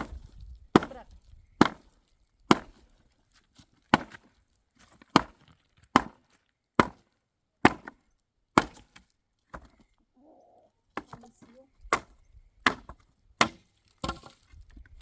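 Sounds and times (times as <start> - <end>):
tool striking wood: 11.9 - 14.3.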